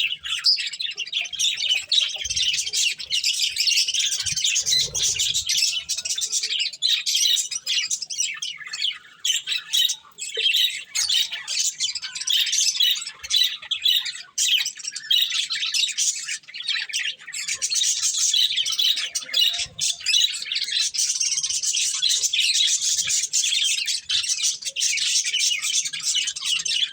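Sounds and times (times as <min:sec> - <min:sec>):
budgerigars chirping and chattering: 0:00.0 - 0:26.9.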